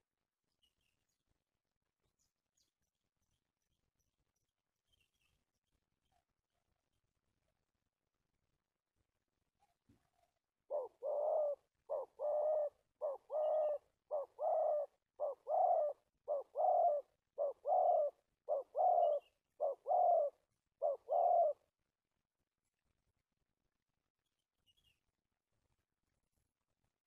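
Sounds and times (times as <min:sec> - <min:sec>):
dove cooing: 0:10.7 - 0:21.7.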